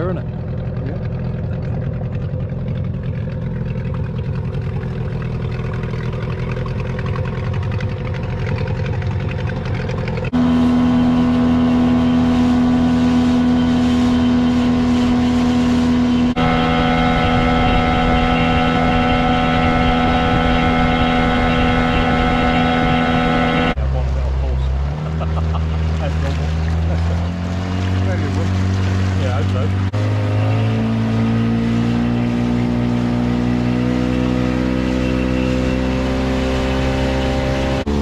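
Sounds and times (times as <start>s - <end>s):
outboard motor running: 0.0s - 38.0s.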